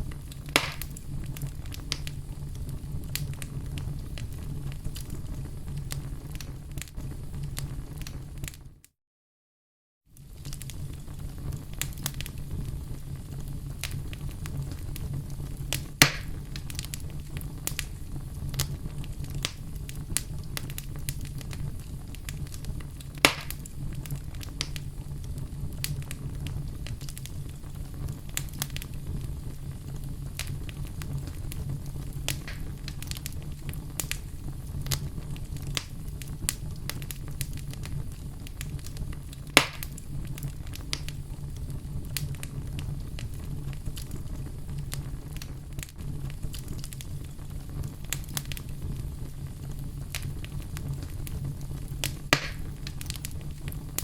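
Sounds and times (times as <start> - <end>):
loud fire pops: 0.0 - 8.6, 10.2 - 54.0
fire crackling: 0.0 - 8.8, 10.1 - 54.0
low fire rumble: 0.0 - 8.9, 10.1 - 54.0.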